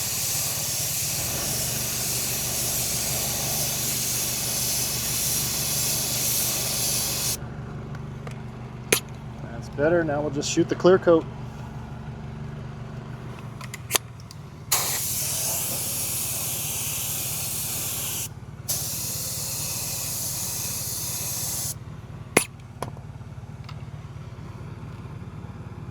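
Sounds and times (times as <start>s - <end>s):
spray hissing: 0.0s - 7.4s, 14.7s - 21.8s.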